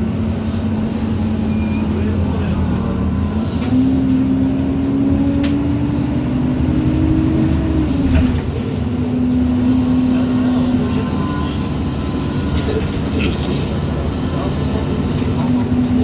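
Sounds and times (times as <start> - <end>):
bus engine and road rumble: 0.0 - 16.0
bus gearbox whine: 9.8 - 16.0.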